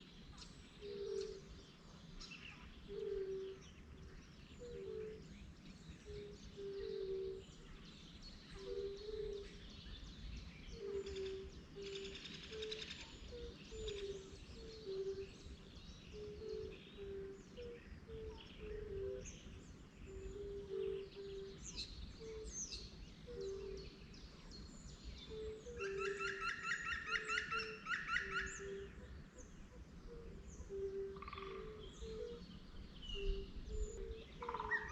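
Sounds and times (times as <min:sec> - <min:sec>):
low hooting bird calls: 0:00.0 - 0:01.9, 0:02.5 - 0:09.8, 0:10.7 - 0:34.9
rapid trilling bird call: 0:25.3 - 0:29.0, 0:33.1 - 0:34.9.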